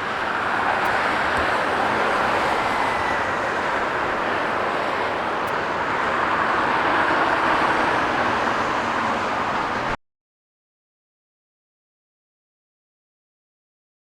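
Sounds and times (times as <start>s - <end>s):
jet engines roaring: 0.0s - 10.0s.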